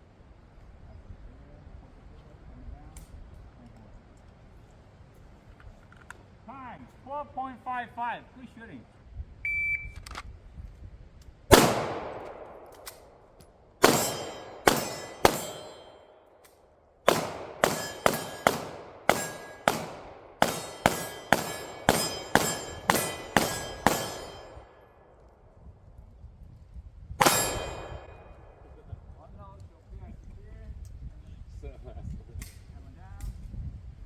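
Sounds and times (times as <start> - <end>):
shot timer beep: 9.5 - 10.0
pistol shots: 11.5 - 16.2, 17.1 - 24.8, 27.2 - 28.6
bullets ringing steel targets: 13.8 - 25.2, 27.2 - 28.6.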